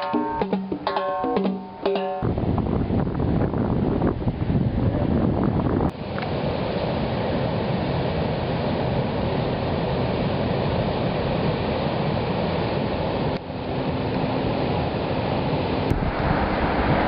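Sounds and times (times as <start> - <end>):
wind on microphone: 2.2 - 6.0, 15.9 - 17.0
ocean surf: 5.9 - 17.0.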